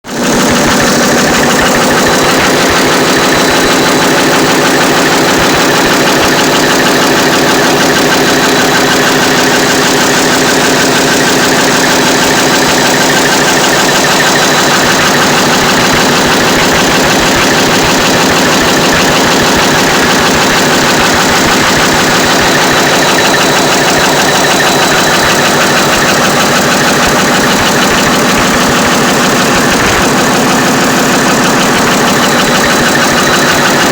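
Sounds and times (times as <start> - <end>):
diesel engine clattering: 0.0 - 33.9.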